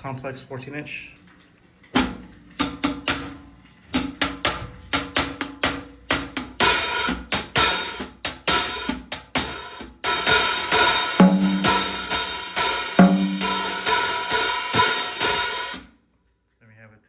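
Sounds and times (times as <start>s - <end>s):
kick and snare drums: 4.0s - 15.8s
hi-hats in drum beat: 4.2s - 15.8s.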